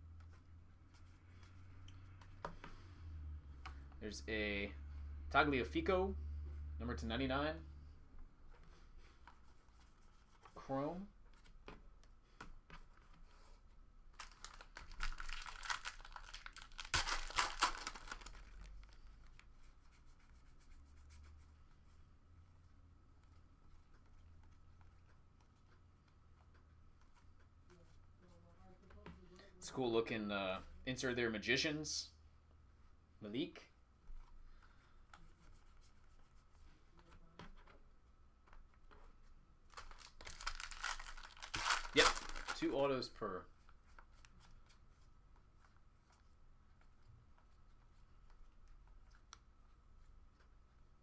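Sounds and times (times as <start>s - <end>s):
wrapper tearing and crinkling: 14.2s - 19.0s, 39.7s - 42.8s.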